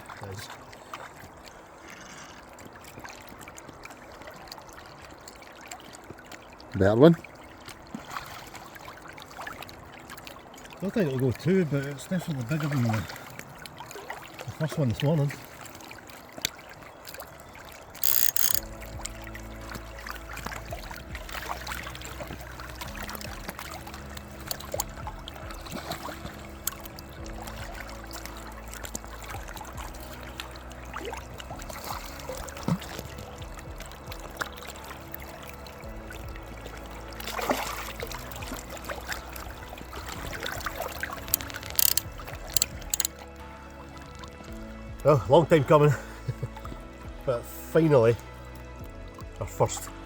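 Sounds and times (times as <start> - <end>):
river water splashing: 0.0 - 50.0
background music: 17.4 - 50.0
sharp clicks: 18.0 - 18.7, 41.3 - 43.1.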